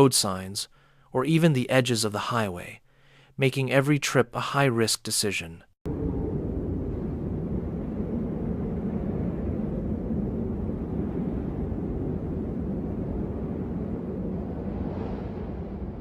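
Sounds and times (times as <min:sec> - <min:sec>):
steady low rumbling: 0:05.9 - 0:16.0.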